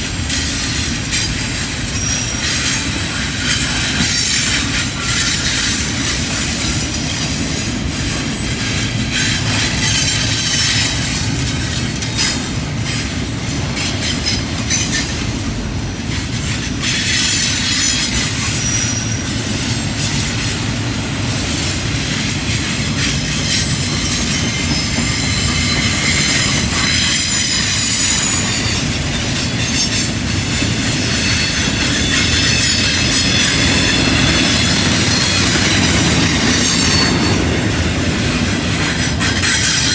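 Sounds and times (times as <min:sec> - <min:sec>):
freight train rumbling past: 0:00.0 - 0:39.9
steel wheels squealing on rails: 0:00.0 - 0:39.9.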